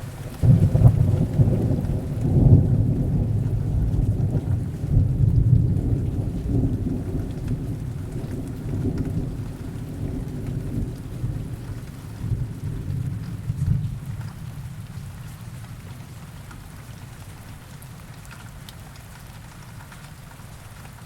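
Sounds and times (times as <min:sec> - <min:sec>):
distant thunder rumbling: 0:00.0 - 0:16.5
heavy rain hiss: 0:00.0 - 0:21.0.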